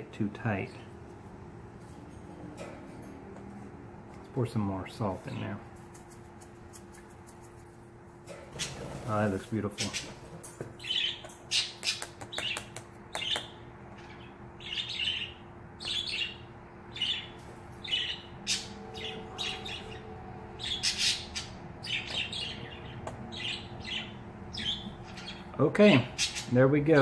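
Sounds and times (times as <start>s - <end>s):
small bird chirping: 10.8s - 25.5s.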